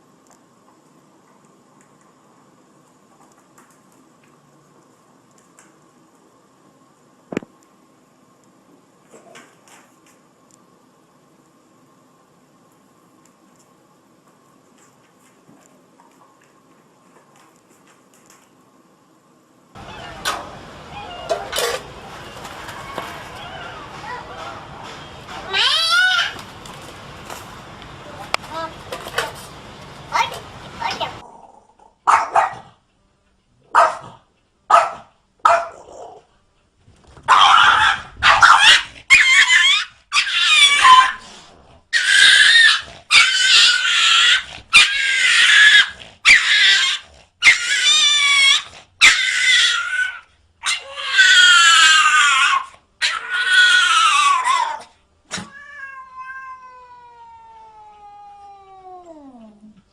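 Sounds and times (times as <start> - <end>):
cat yowling: 19.8 - 24.4, 25.4 - 26.4, 37.3 - 41.2, 42.0 - 59.5.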